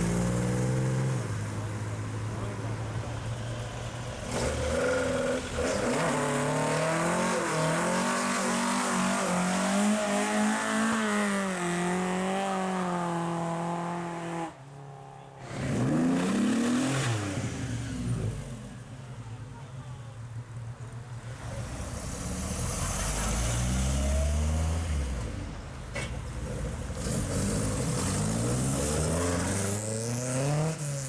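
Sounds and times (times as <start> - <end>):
car engine revving: 15.4 - 18.7.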